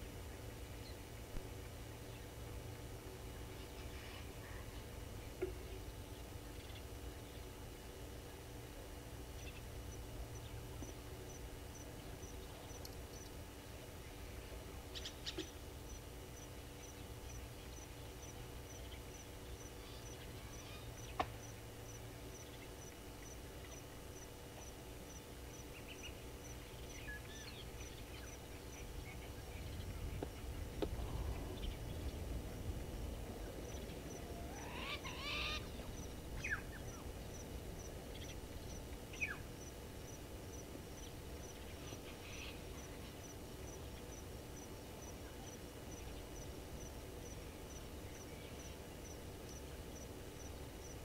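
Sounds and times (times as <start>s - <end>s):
wild birds calling: 25.6s - 37.4s, 41.4s - 44.1s.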